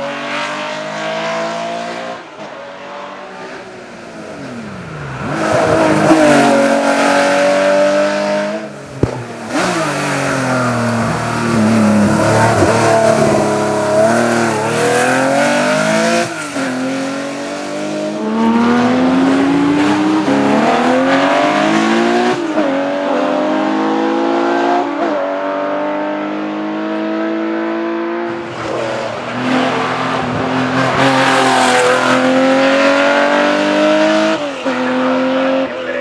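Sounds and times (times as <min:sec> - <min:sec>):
racing car engine accelerating: 0:04.3 - 0:36.0.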